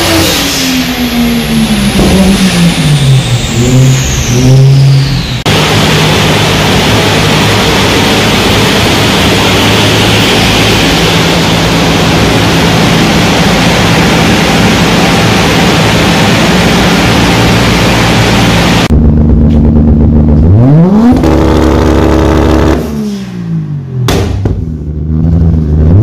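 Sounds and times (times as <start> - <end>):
engine idling: 0.0 - 20.6
loud rushing air: 0.3 - 19.1.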